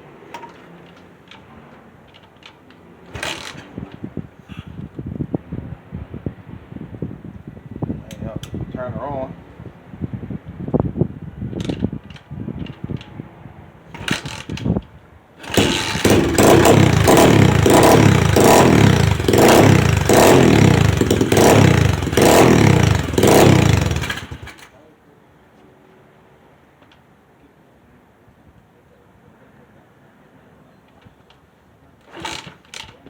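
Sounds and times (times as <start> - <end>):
pit bike engine revving: 3.1 - 4.0, 13.9 - 14.7, 15.4 - 24.7, 32.1 - 32.9.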